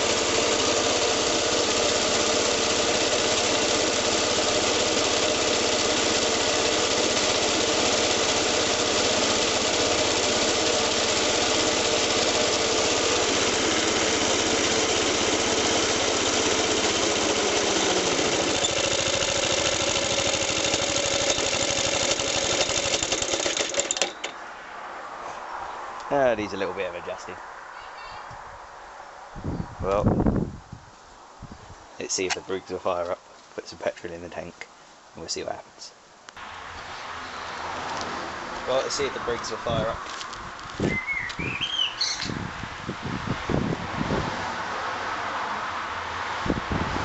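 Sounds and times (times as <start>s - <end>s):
lawnmower engine running: 0.0s - 24.4s.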